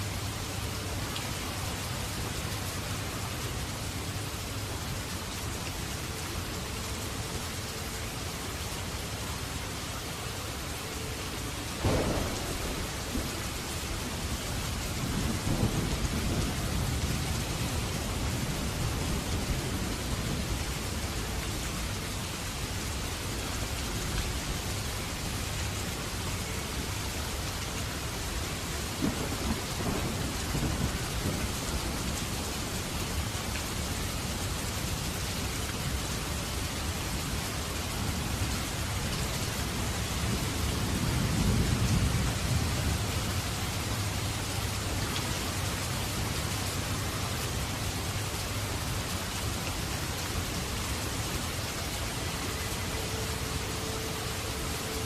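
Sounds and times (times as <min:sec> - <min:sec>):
heavy rain: 0:00.0 - 0:55.0
low rumble of thunder: 0:11.7 - 0:22.6, 0:28.3 - 0:35.2, 0:35.9 - 0:46.9
thunderclap: 0:11.8 - 0:17.2, 0:29.0 - 0:31.6.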